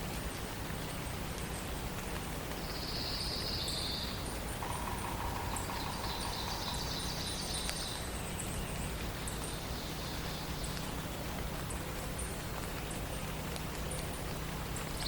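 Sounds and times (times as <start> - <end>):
low background rumble: 3.8 - 15.0
bird warbling: 4.6 - 8.1.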